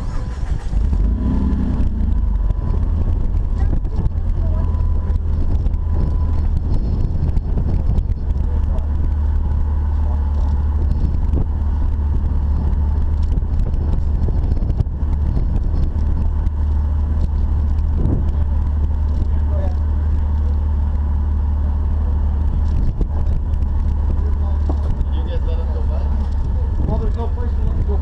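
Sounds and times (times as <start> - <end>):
off-road vehicle engine rumble: 0.0 - 28.0.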